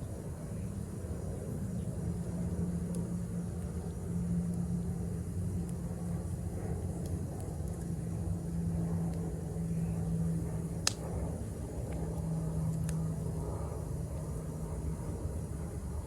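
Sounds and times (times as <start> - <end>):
low fire rumble: 0.0 - 16.0
campfire crackling pops: 5.5 - 8.1, 10.6 - 13.3.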